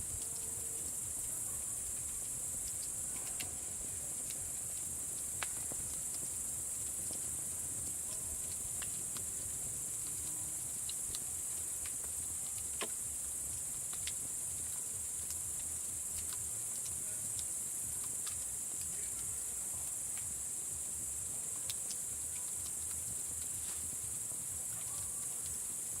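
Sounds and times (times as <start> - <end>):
campfire popping and crackling: 0.0 - 26.0
crickets trilling: 0.0 - 26.0.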